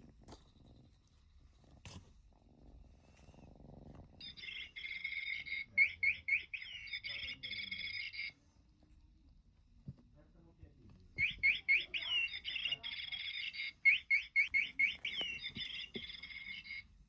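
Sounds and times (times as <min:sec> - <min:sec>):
rapid bird-like chirping: 0:04.2 - 0:08.3, 0:11.2 - 0:16.9.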